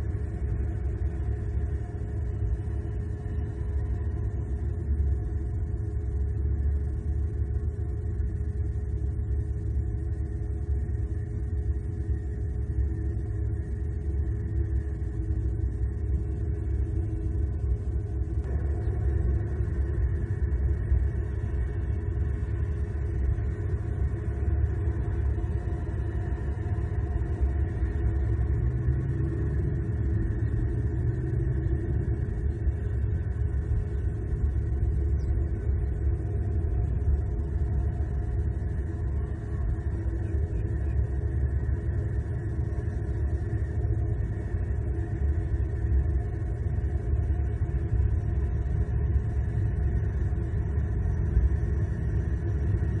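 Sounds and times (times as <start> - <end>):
faint constant hum: 0.0 - 53.0
low rumble: 11.8 - 53.0.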